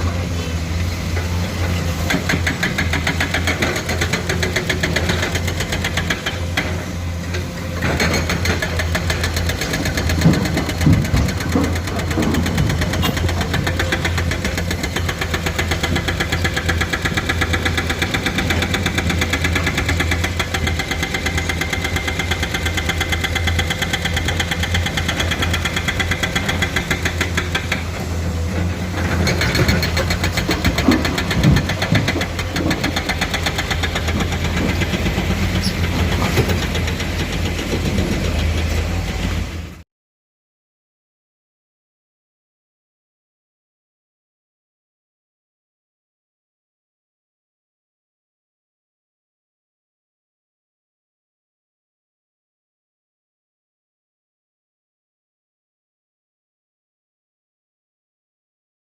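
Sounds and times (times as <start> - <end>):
diesel engine running: 0.0 - 39.8.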